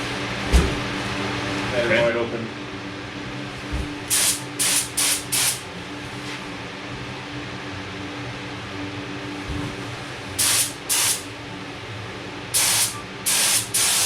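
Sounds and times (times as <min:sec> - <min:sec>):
steady low hum: 0:00.0 - 0:14.0
spray gun hissing blasts: 0:04.1 - 0:05.6, 0:10.4 - 0:11.2, 0:12.6 - 0:14.0.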